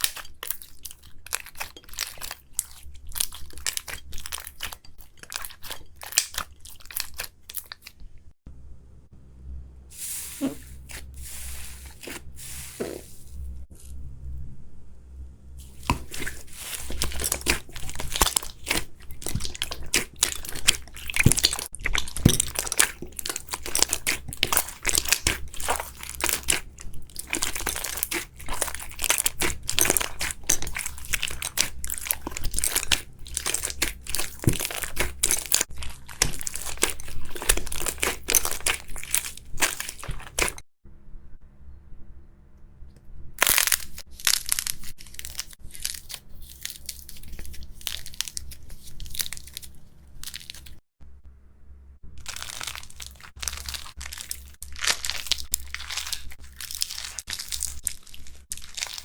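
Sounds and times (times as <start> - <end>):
slime crackling when squeezed: 15.7 - 40.6.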